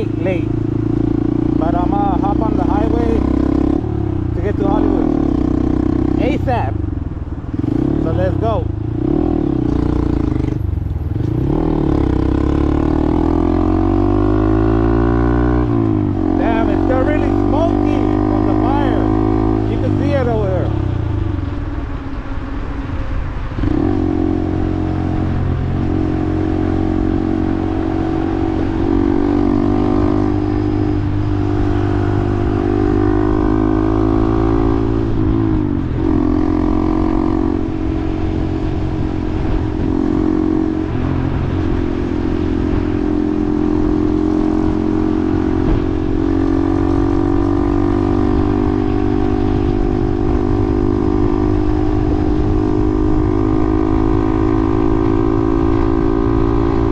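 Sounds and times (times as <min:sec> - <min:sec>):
motorcycle engine accelerating: 0:00.0 - 0:56.9
wind on microphone: 0:03.0 - 0:56.9.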